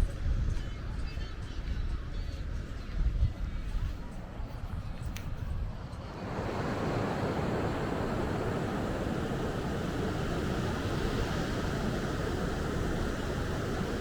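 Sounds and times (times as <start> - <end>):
wind: 0.0 - 14.0
sea surf: 6.1 - 14.0.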